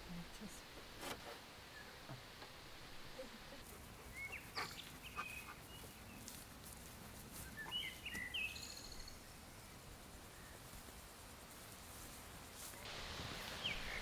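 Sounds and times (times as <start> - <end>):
faint outdoor background noise: 0.0 - 14.0
small birds chirping: 3.1 - 6.4, 7.3 - 10.7, 12.4 - 14.0.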